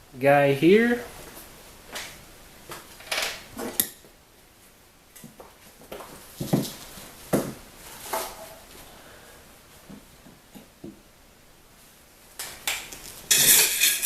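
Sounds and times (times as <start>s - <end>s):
metal parts and tools clinking: 13.3s - 14.0s.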